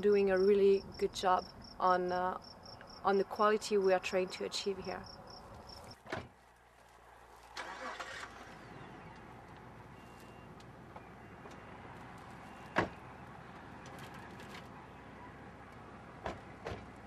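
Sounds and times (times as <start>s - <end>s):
car engine starting and idling: 7.4s - 10.1s.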